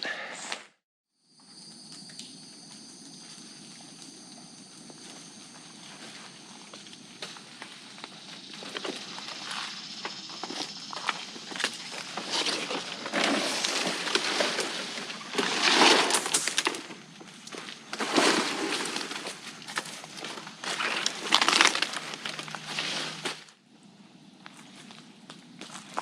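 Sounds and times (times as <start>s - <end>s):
footsteps through undergrowth: 3.0s - 23.5s
leaves crunching and twigs snapping: 16.2s - 23.5s.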